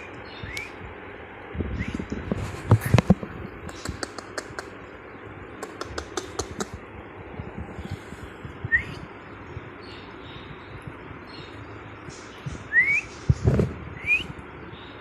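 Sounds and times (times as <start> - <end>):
quick light clicks and taps: 2.7 - 4.7, 5.6 - 6.8.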